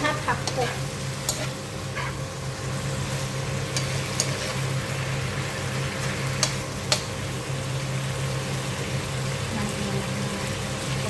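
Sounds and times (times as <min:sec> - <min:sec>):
food sizzling in a pan: 0:00.0 - 0:11.0
utensil clicking against pan: 0:06.4 - 0:07.1.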